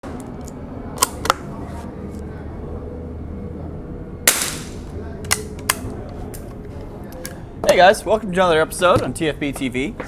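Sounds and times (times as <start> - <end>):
low background hum: 0.0 - 10.0
gunshots: 4.3 - 4.8.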